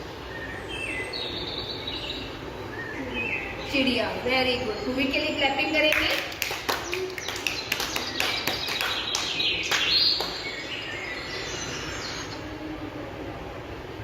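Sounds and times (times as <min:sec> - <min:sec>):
hand clapping: 0:05.9 - 0:10.5
bird chirps: 0:06.9 - 0:12.5.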